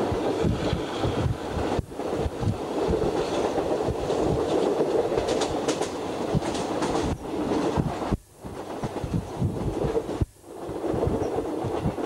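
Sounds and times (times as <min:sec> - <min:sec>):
train wheels rumbling on rails: 0:00.0 - 0:12.0
clacks and knocks: 0:02.9 - 0:07.9.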